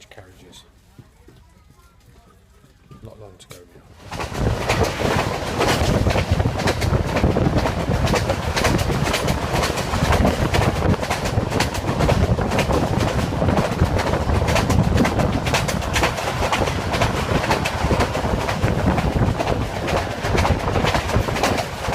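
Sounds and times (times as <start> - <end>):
train wheels clattering: 2.6 - 21.9
train rumbling on rails: 3.7 - 21.9.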